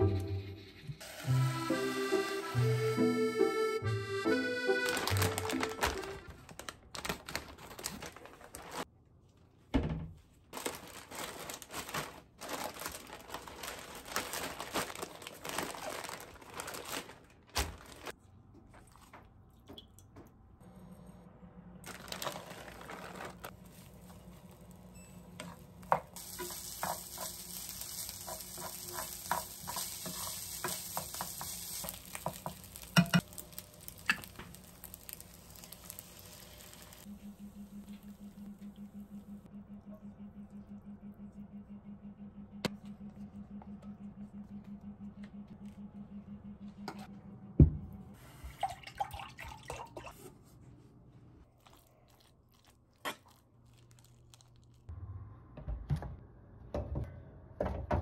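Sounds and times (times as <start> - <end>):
plastic bag crinkling: 4.7 - 8.9, 10.5 - 18.2, 21.8 - 24.9, 26.2 - 37.1, 51.6 - 54.9
rice sizzling in a pan: 23.6 - 24.8, 25.8 - 37.5.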